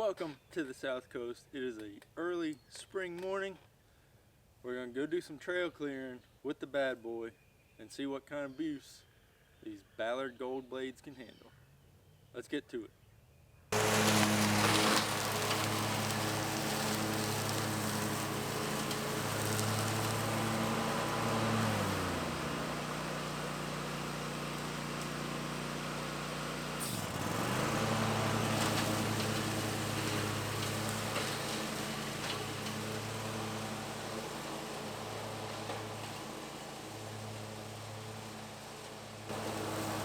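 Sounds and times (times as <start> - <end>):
mower engine running: 13.8 - 40.0.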